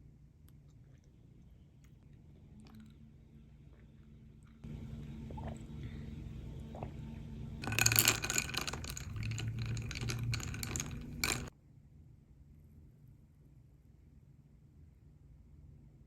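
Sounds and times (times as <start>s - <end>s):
low steady hush: 0.6s - 11.5s
kitchen utensils clinking and rattling: 7.6s - 11.5s.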